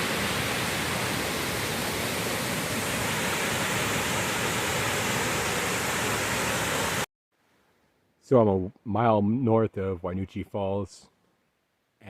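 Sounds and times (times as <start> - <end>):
waterfall rushing: 0.0 - 7.1.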